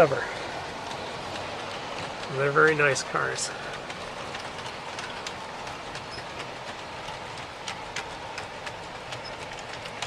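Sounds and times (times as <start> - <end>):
model train rolling on track: 0.0 - 10.0
wheels clicking over rail joints: 0.0 - 10.0.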